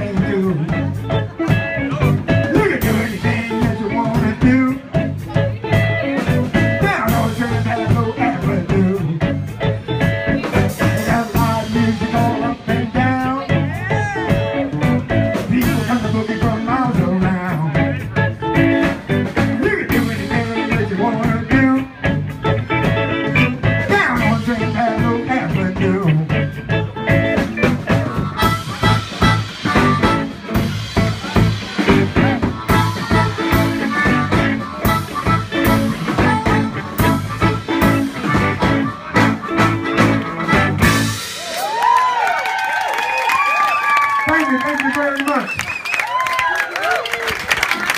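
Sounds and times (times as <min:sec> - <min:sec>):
harmonica blues band playing: 0:00.0 - 0:42.3
audience whooping: 0:38.7 - 0:47.9.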